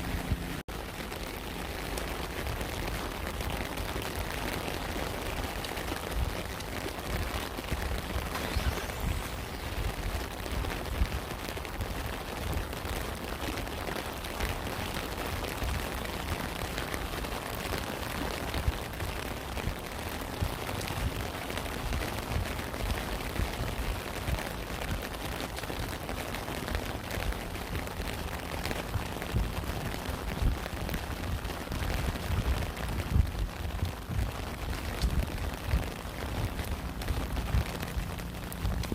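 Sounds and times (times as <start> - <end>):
steady rain: 0.0 - 38.9
low rumble: 7.2 - 12.9.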